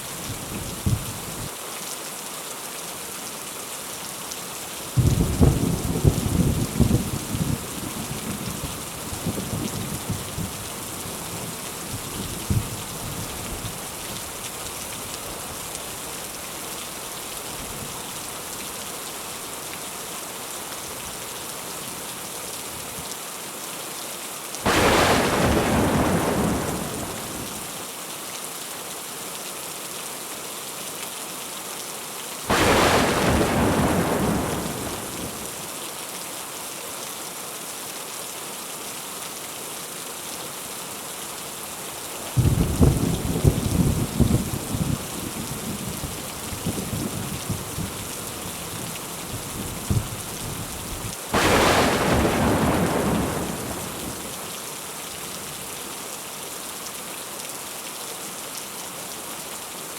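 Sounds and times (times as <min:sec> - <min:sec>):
heavy rain: 0:00.0 - 0:28.1, 0:32.4 - 0:36.6, 0:37.5 - 0:59.9
low thunder rumbling: 0:24.7 - 0:27.7, 0:32.5 - 0:35.6, 0:42.4 - 0:48.1, 0:51.4 - 0:54.4
thunder cracks: 0:24.7 - 0:27.7, 0:32.5 - 0:35.6, 0:51.4 - 0:54.4.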